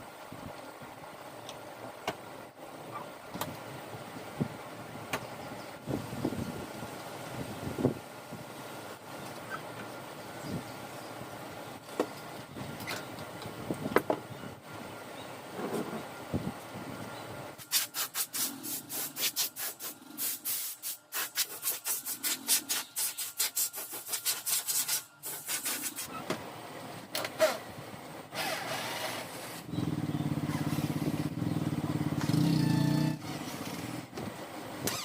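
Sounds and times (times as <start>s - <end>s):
small motor running: 28.4s - 31.3s.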